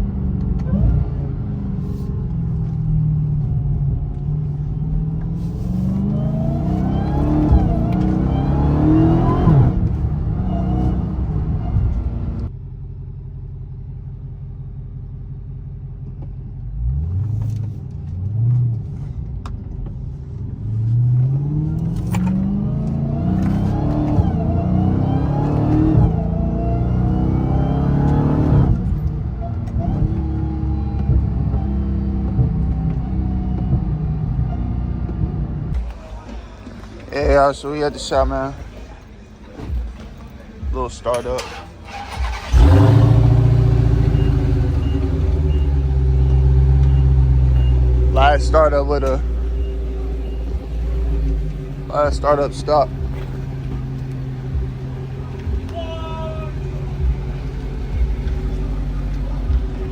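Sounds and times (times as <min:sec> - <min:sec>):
car engine revs: 0:00.0 - 0:12.7, 0:15.4 - 0:59.9
car engine accelerating hard: 0:00.0 - 0:59.9.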